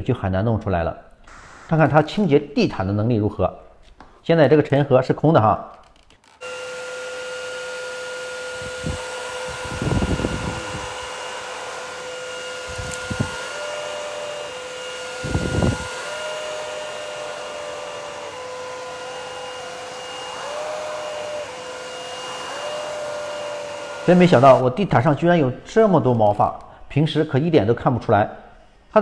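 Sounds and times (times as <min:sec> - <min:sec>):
vacuum cleaner whining: 0:01.3 - 0:02.4, 0:06.2 - 0:24.7.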